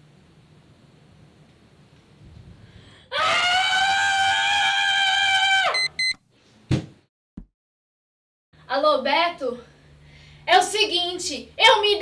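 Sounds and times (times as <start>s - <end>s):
woman screaming: 3.1s - 5.8s
alarm clock beeps: 5.8s - 6.2s.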